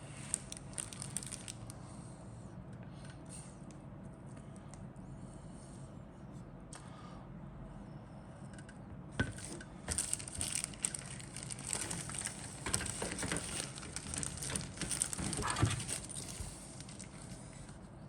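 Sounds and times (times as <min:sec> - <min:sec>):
low steady hum: 0:00.0 - 0:18.0
plastic crinkling and rustling: 0:00.2 - 0:01.7, 0:09.3 - 0:17.8.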